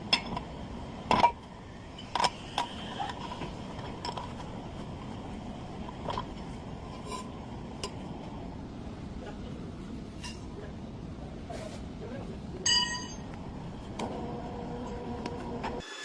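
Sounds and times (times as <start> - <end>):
metal tools clinking: 12.7 - 13.3.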